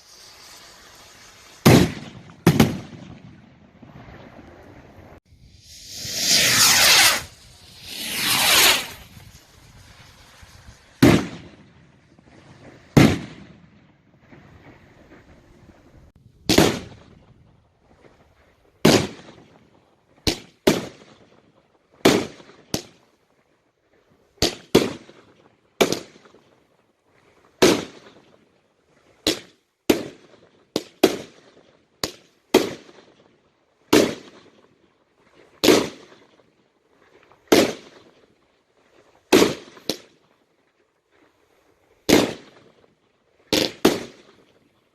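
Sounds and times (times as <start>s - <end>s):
fireworks bangs echoing: 0.0s - 4.4s, 5.6s - 14.5s, 16.5s - 17.1s, 27.6s - 28.2s, 33.9s - 34.6s, 35.6s - 36.2s, 37.5s - 38.2s, 39.3s - 40.1s, 42.1s - 42.8s, 43.5s - 44.4s.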